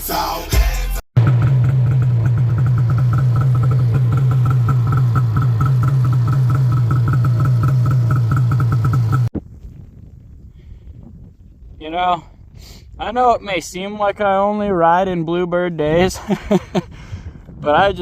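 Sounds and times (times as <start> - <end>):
snowmobile engine running: 1.2 - 9.3.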